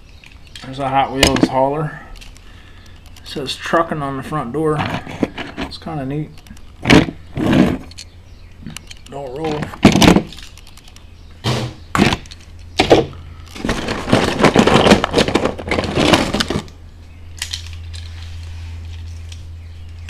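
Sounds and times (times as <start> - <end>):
steady low hum: 0.0 - 20.0
metal toy cars clattering: 12.0 - 16.7.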